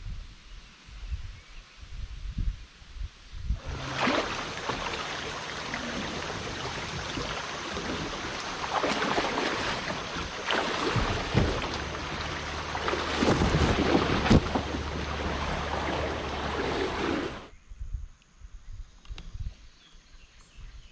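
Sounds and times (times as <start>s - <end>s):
creek water rushing: 3.6s - 17.5s.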